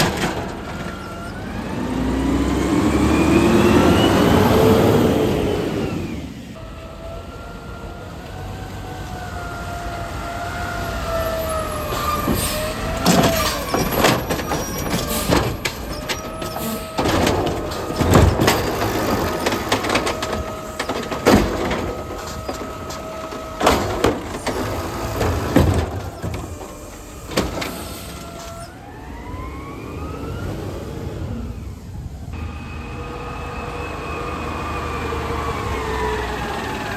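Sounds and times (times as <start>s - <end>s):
metallic clanks and bangs: 0.0s - 1.4s, 11.8s - 28.5s
garbage truck whine: 0.0s - 36.9s
truck engine: 0.0s - 36.9s.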